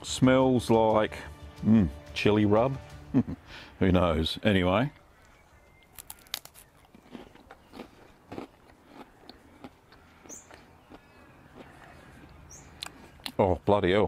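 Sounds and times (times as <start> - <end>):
crunchy chewing: 5.0 - 13.4
biting into cracker: 5.2 - 13.4.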